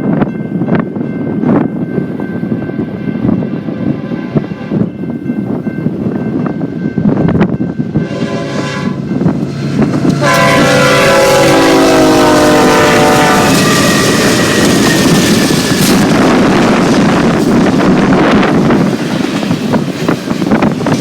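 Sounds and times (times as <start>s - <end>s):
rumble of passing train: 0.0s - 21.0s
train air horn blasts: 8.0s - 16.1s.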